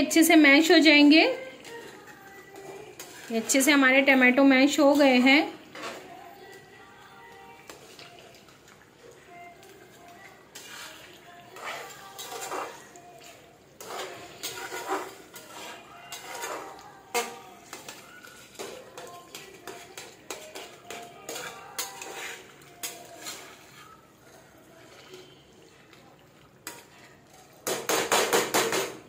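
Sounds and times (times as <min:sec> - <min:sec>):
metal ladle scraping pan: 0:00.8 - 0:04.1, 0:04.7 - 0:06.2, 0:10.0 - 0:25.2.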